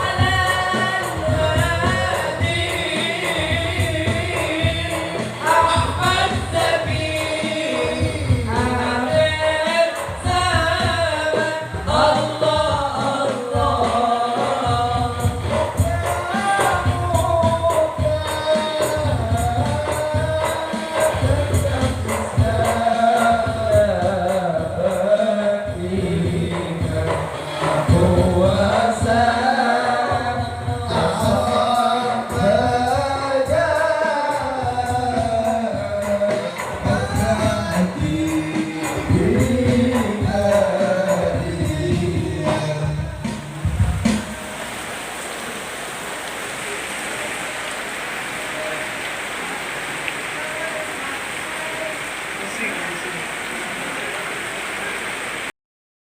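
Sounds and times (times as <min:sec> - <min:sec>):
steady percussion: 0:00.0 - 0:44.7
voices singing gliding melody: 0:00.0 - 0:55.5.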